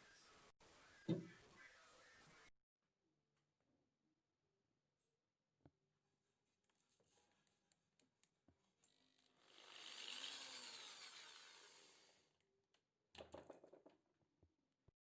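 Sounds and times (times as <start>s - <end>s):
small power tool whirring: 8.8s - 12.3s.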